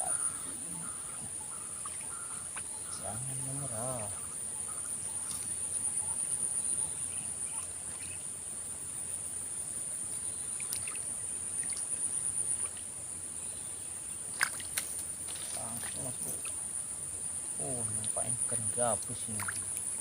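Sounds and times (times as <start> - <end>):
insect chorus buzzing: 0.0 - 20.0
faint small ticks: 5.2 - 5.6, 10.4 - 12.9, 19.0 - 20.0.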